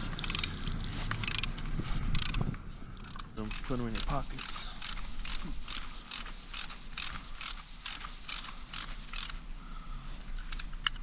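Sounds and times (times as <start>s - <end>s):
ratchet wrench clicking: 0.0s - 0.5s, 1.2s - 1.6s, 2.2s - 2.4s, 3.0s - 9.4s.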